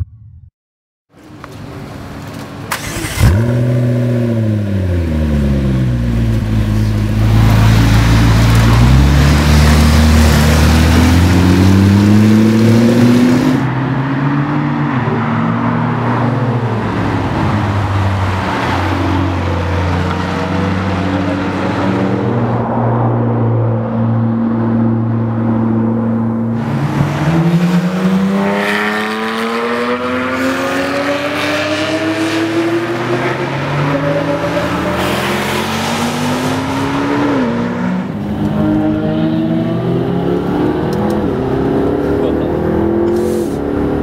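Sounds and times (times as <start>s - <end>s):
sports car engine revving: 2.8s - 16.2s.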